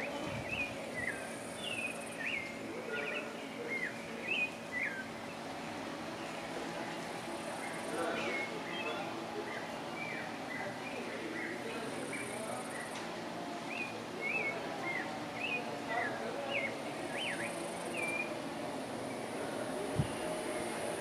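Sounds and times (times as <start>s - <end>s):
steady background hiss: 0.0s - 21.0s
bird whistled chirps: 17.1s - 18.4s.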